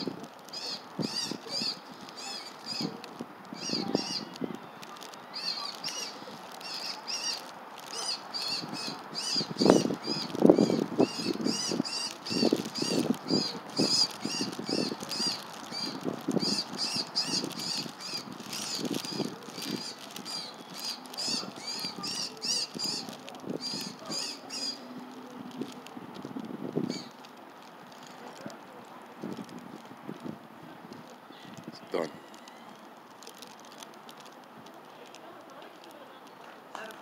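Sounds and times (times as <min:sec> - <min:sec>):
bird chirping: 0:00.0 - 0:24.9
rustling and wing-flapping: 0:00.0 - 0:37.0.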